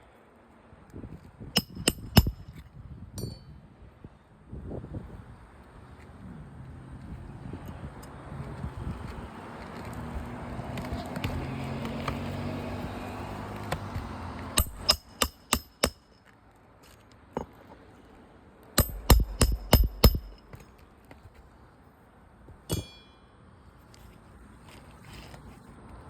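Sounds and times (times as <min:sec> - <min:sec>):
hammer striking roof shingles: 0:13.6 - 0:16.0, 0:18.8 - 0:20.6.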